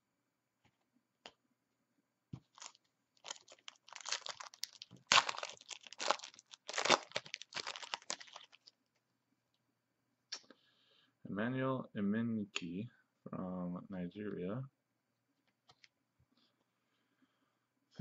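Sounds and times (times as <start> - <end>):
foil wrapper crinkling: 2.5 - 8.8.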